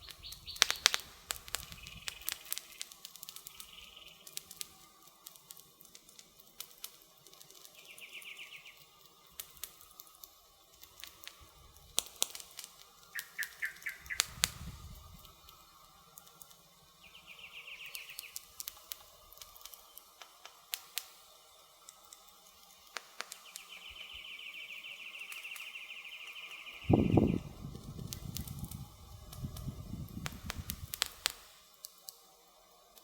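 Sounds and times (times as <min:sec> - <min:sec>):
bird singing rapid trills: 0:00.0 - 0:04.8, 0:07.6 - 0:09.1, 0:13.0 - 0:15.8, 0:16.9 - 0:18.8, 0:23.2 - 0:30.2
campfire crackling and popping: 0:00.0 - 0:33.0.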